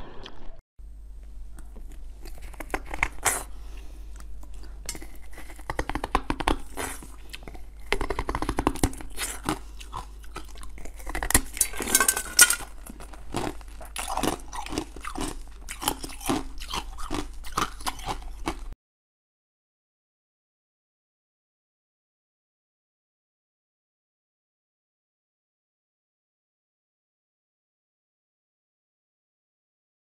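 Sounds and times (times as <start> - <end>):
crunchy biting and chewing: 1.3 - 18.8.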